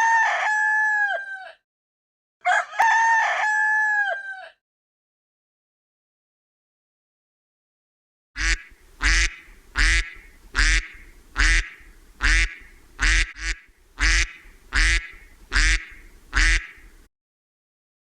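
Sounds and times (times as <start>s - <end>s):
duck quacking: 8.4s - 17.1s.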